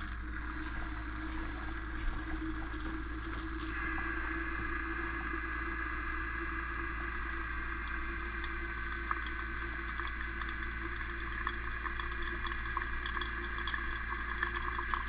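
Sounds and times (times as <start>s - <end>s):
water flowing and spraying: 0.0s - 10.5s
pump humming: 0.0s - 15.0s.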